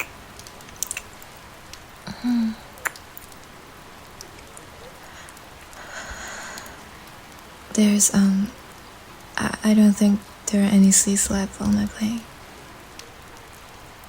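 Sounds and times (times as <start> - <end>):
steady rain: 0.0 - 14.0
breathy noise: 2.0 - 3.0, 4.8 - 7.4.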